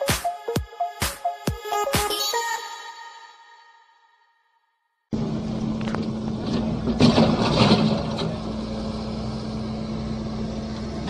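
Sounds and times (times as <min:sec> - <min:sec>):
excavator diesel engine running: 0:05.1 - 0:11.0.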